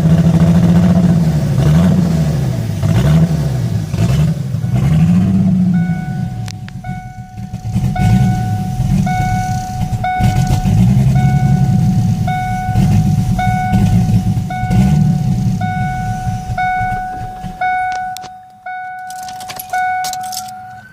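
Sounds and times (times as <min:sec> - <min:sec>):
car engine idling roughly: 0:04.4 - 0:18.3
warning chime dinging: 0:04.6 - 0:20.9.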